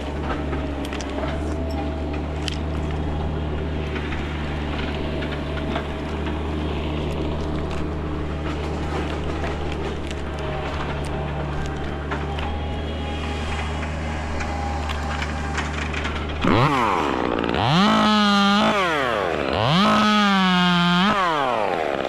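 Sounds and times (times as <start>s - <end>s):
chainsaw revving: 0.0s - 22.0s
low engine drone: 0.0s - 22.0s.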